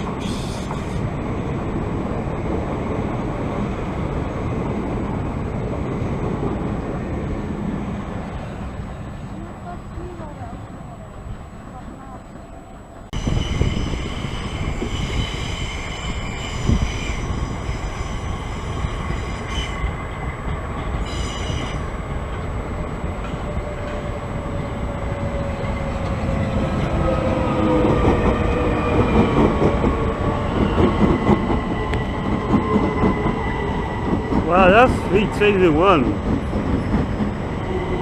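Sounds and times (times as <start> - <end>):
high squeal of rails: 0.0 - 1.2, 12.3 - 35.1, 35.9 - 38.0
train wheels rumbling: 0.0 - 38.0.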